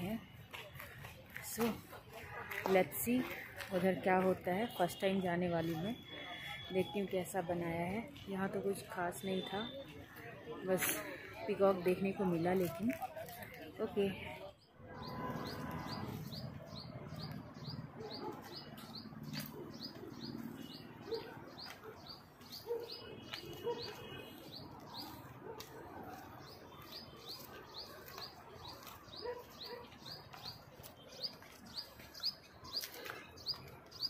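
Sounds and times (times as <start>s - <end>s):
faint outdoor background noise: 0.0s - 34.0s.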